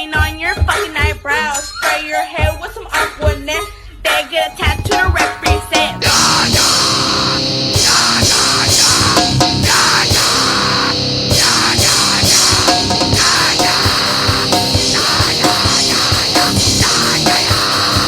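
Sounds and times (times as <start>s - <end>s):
distorted guitars: 4.5s - 18.0s
fast loud drum kit: 4.5s - 18.0s.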